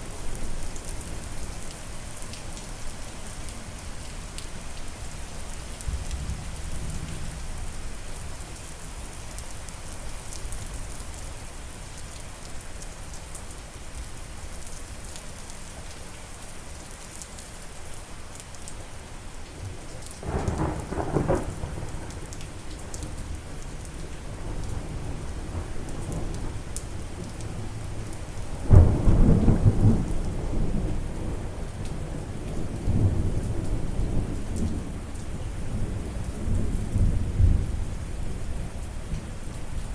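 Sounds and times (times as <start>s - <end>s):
steady rain: 0.0s - 39.9s
thunder rumbling: 20.2s - 22.1s, 28.6s - 31.5s.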